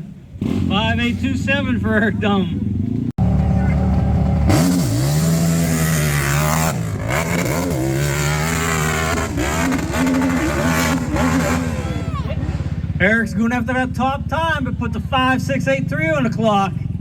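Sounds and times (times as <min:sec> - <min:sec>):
quad engine revving hard: 0:00.4 - 0:01.5, 0:03.2 - 0:14.0.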